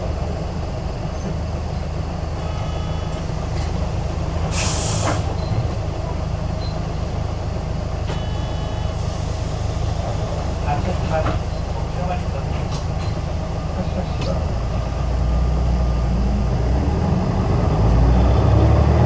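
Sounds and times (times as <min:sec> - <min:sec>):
bus engine drone: 0:00.0 - 0:19.0
air brake hiss: 0:04.5 - 0:05.4, 0:08.1 - 0:10.2.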